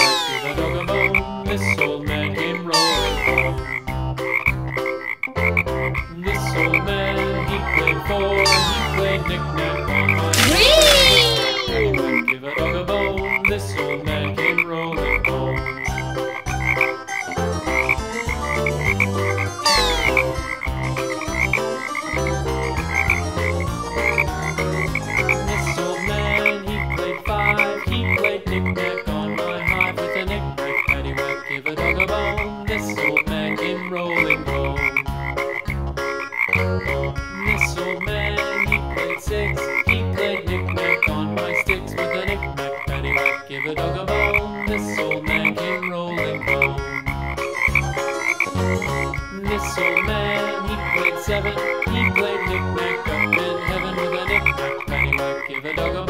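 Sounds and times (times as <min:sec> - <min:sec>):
frog croaking: 0:02.8 - 0:06.1, 0:18.8 - 0:22.1, 0:33.8 - 0:39.9, 0:42.7 - 0:55.7.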